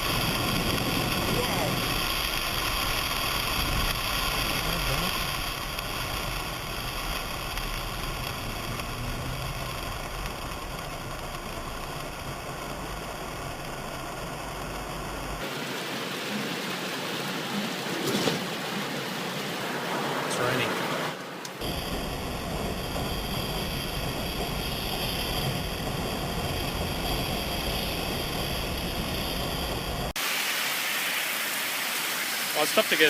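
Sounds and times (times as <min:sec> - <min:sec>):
low rumble: 0:00.0 - 0:15.4, 0:21.5 - 0:30.2
rain hiss: 0:00.0 - 0:33.0.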